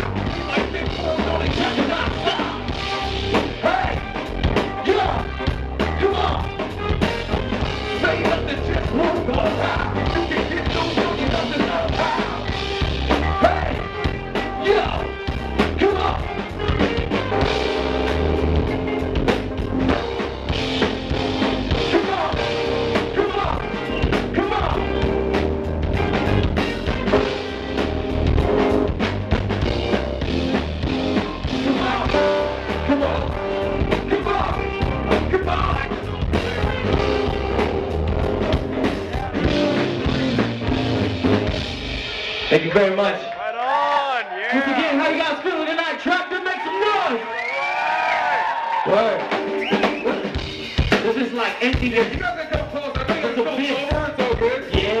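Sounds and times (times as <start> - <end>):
person singing: 0.0 - 19.2, 31.4 - 40.5
drum kit beat: 0.0 - 43.0, 49.1 - 55.0
bass: 0.0 - 43.3, 47.0 - 55.0
guitar: 0.0 - 43.4, 47.4 - 55.0.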